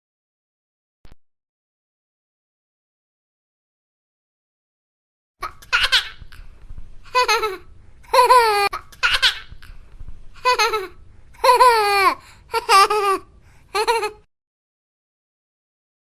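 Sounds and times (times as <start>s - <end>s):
baby laughing: 5.4s - 6.5s, 7.1s - 9.8s, 10.4s - 14.3s.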